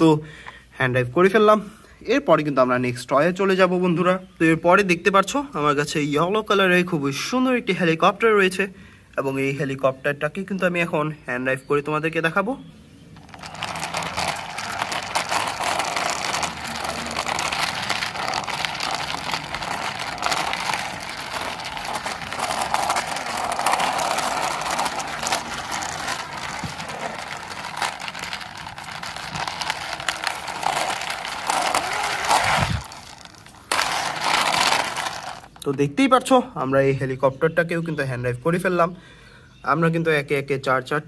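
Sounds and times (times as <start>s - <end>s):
toy wheels rolling on ground: 13.0s - 36.0s.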